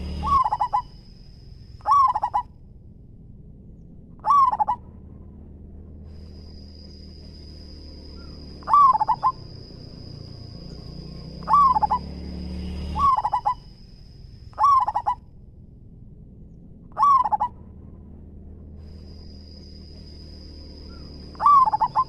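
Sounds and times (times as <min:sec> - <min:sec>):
dove cooing: 0:00.0 - 0:01.0, 0:01.8 - 0:02.5, 0:04.2 - 0:04.8, 0:08.2 - 0:10.4, 0:11.4 - 0:12.1, 0:13.0 - 0:13.7, 0:14.6 - 0:15.2, 0:16.9 - 0:17.6, 0:20.9 - 0:22.0
high-pitched whine: 0:00.0 - 0:22.0.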